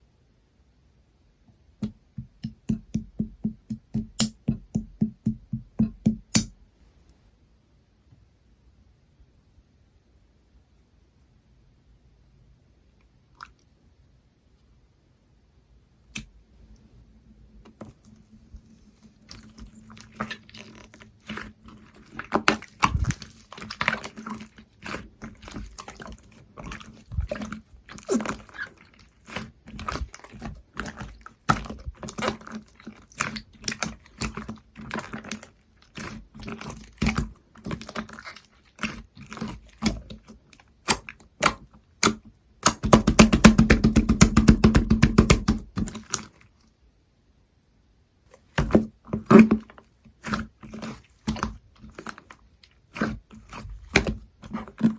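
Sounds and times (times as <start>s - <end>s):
slime squishing with wet pops: 1.8s - 6.6s, 17.7s - 46.6s, 48.3s - 54.9s.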